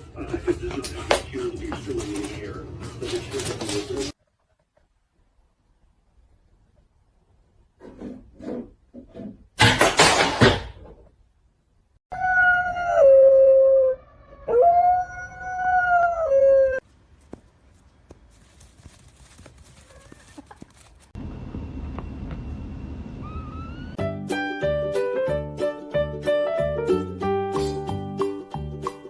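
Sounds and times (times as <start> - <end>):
dog howling: 12.1 - 16.8.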